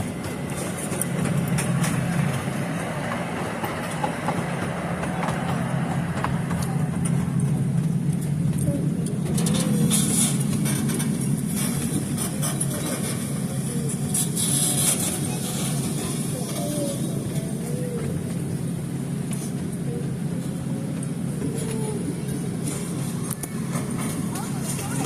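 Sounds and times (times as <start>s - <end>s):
train running rumble: 0.0s - 25.0s.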